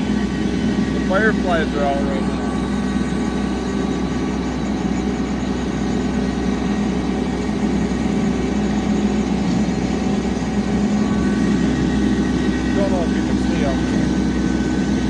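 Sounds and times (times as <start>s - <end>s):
tractor engine droning: 0.0s - 15.0s.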